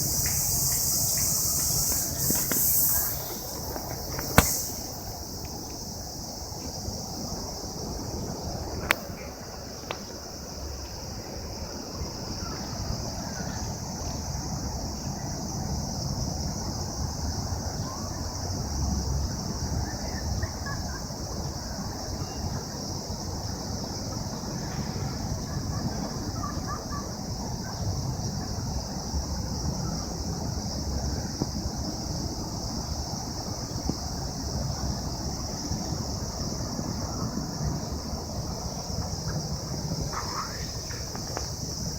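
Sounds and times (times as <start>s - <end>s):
insects singing: 0.0s - 7.9s, 35.0s - 41.9s
wind rumbling on microphone: 0.0s - 10.3s
sharp click: 0.1s - 5.0s.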